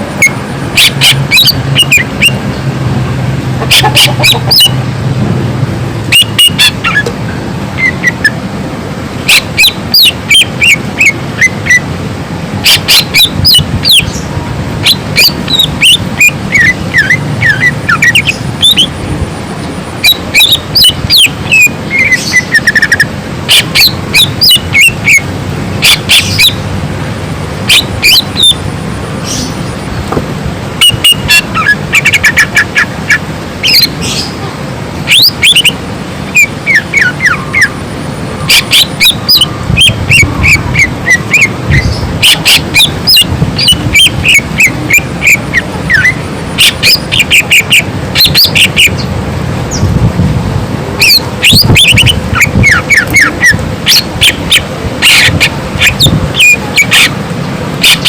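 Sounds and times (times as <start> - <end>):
bird song with chirps and trills: 0.0 - 2.7, 3.6 - 4.8, 6.1 - 8.4, 9.3 - 11.9, 12.6 - 19.0, 19.6 - 26.7, 27.6 - 28.6, 29.2 - 29.8, 30.8 - 34.4, 35.1 - 37.8, 38.4 - 49.9, 51.0 - 57.2, 57.8 - 58.0.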